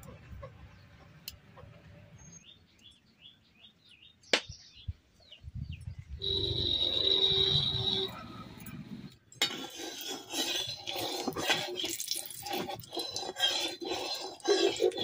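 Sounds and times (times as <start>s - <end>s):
steady high tone: 6.2s - 8.7s.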